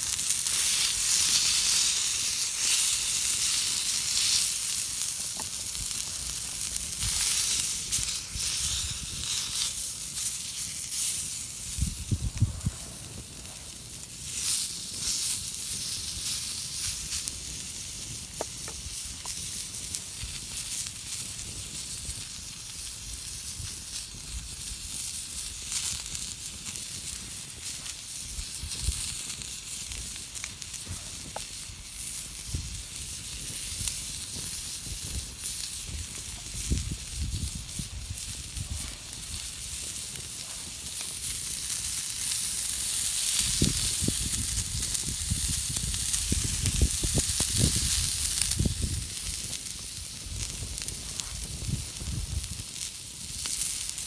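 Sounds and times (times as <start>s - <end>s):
campfire crackling and hissing: 0.0s - 54.0s
dull low thumps: 11.8s - 13.0s.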